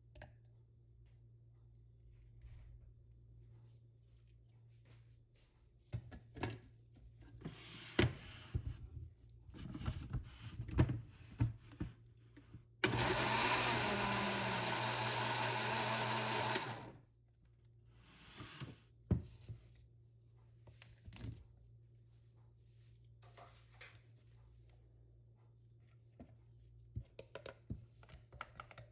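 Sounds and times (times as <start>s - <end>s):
electric kitchen mixer running: 12.8s - 17.0s.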